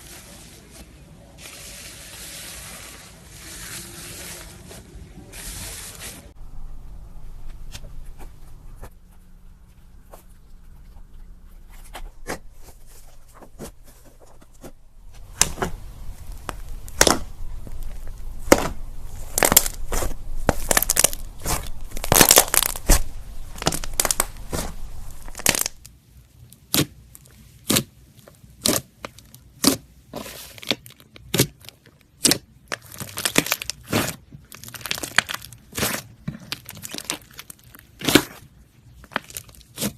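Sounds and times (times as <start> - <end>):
slime crackling and clicking: 15.3 - 25.9, 30.6 - 38.4.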